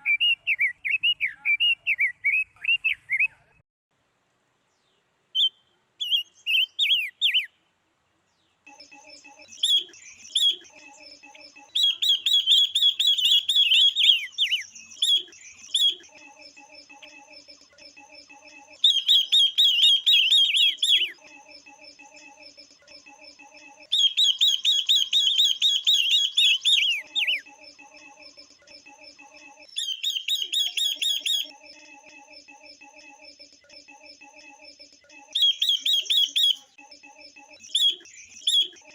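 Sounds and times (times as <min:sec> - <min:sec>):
faint bird chirping: 0:00.0 - 0:03.6, 0:04.6 - 0:38.9
songbirds rapid falling chirps: 0:04.7 - 0:07.6, 0:08.2 - 0:22.5, 0:23.2 - 0:28.0, 0:29.0 - 0:31.5, 0:35.3 - 0:36.7.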